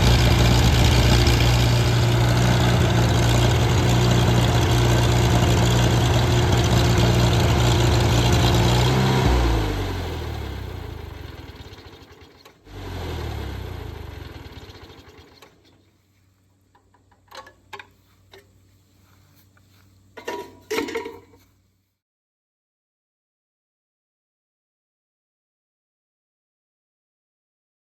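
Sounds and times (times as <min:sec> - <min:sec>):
tractor engine winding down: 0:00.0 - 0:15.8.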